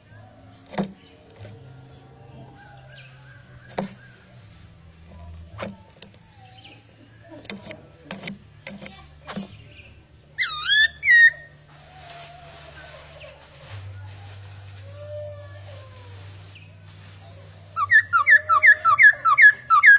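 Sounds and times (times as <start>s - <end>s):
bird calling: 2.3s - 9.8s, 10.4s - 13.6s, 17.2s - 19.9s.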